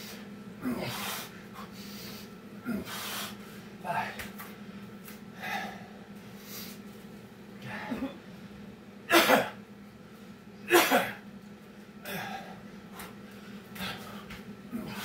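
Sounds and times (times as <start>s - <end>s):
man breathing hard: 0.0s - 4.2s, 5.3s - 6.8s, 12.0s - 15.0s.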